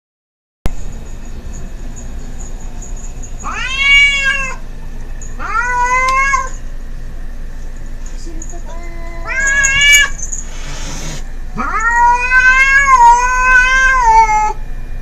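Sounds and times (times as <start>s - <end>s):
cats yowling: 3.4s - 4.7s, 5.3s - 6.6s, 8.7s - 14.6s.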